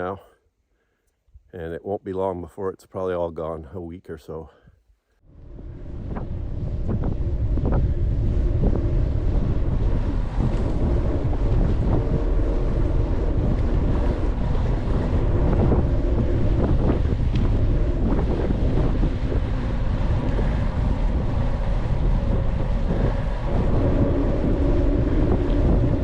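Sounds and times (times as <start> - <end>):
wind buffeting microphone: 5.3 - 26.0
bicycle rattles and ticks: 5.9 - 26.0.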